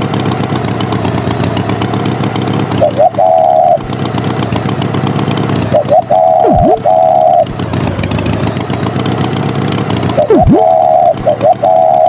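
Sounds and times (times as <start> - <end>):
cartoon tractor engine running: 0.0 - 12.0
horn-like tones: 2.8 - 3.8, 5.8 - 7.5
swooping pitch sound: 2.8 - 3.9, 5.7 - 8.4, 10.1 - 12.0.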